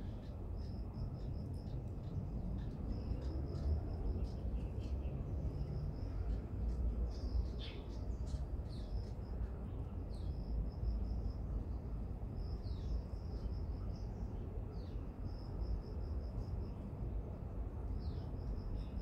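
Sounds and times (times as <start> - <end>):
small birds chirping and trilling: 7.1 - 9.3.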